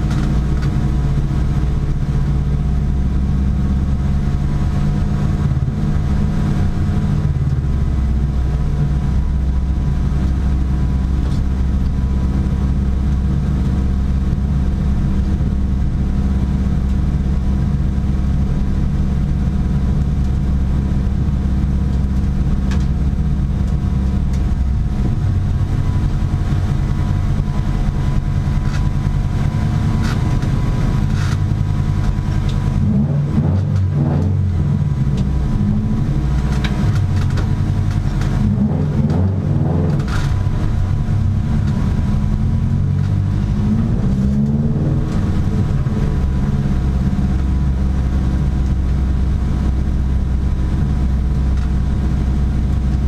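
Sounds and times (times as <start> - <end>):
sharp clicks and rattles: 0.0 - 0.9, 21.8 - 32.9, 36.2 - 39.2, 39.8 - 43.5
car engine running: 0.0 - 53.0.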